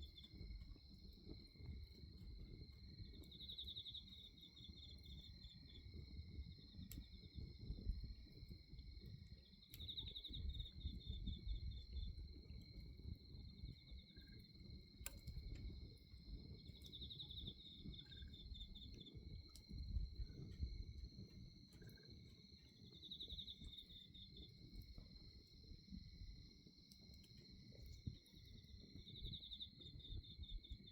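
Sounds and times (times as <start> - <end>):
bonfire crackling: 0.0 - 29.2
crickets chirping: 0.0 - 30.9
sharp pops from fire: 14.8 - 20.7.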